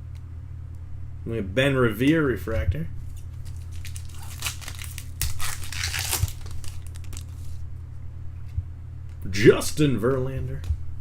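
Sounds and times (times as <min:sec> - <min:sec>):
low electrical hum: 0:00.0 - 0:11.0
crinkling plastic packaging: 0:03.1 - 0:07.6.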